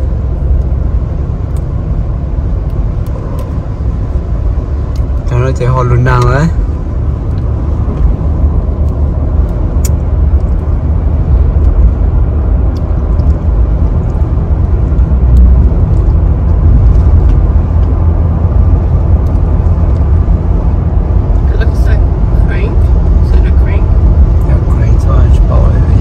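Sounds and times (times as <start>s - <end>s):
car driving on road: 0.0s - 26.0s.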